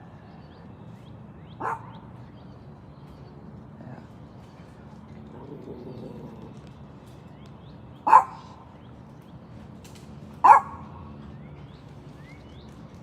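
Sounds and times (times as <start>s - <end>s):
dog barking: 1.6s - 2.0s, 8.1s - 8.5s, 10.4s - 10.9s.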